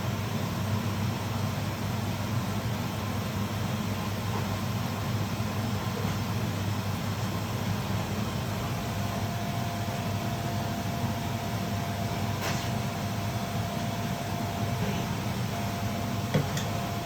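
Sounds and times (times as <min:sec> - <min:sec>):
low mechanical hum with whine: 0:00.0 - 0:17.0.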